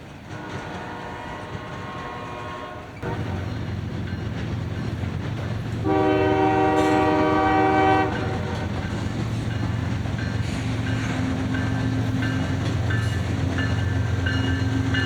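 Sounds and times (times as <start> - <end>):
low rumble of train: 0.0 - 15.0
locomotive air horn blasts: 0.3 - 3.5, 5.8 - 8.8.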